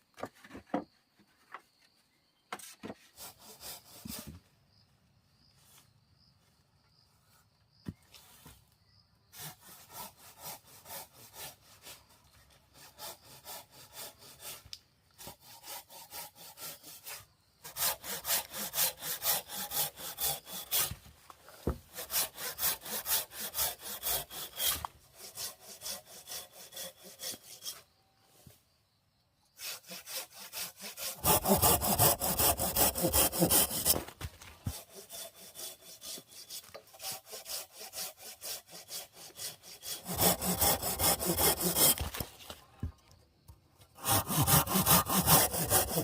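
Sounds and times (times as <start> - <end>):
hand saw cutting wood: 3.1 - 4.4, 9.3 - 27.9, 29.6 - 42.6, 44.0 - 46.0.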